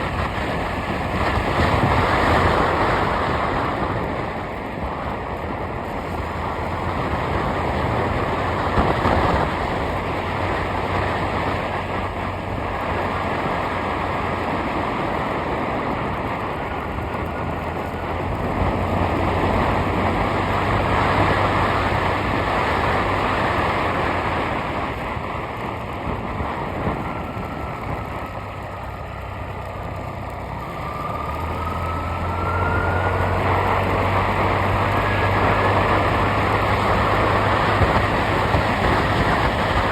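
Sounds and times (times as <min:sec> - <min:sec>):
road and wind noise: 0:00.0 - 0:39.9
vehicle engine hum: 0:00.0 - 0:39.9.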